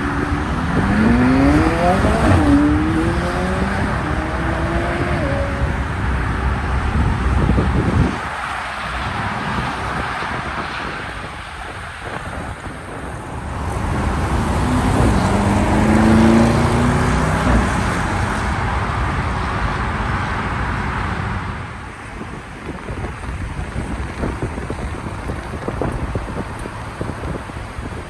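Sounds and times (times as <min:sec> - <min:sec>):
car driving past: 0:13.7 - 0:18.6.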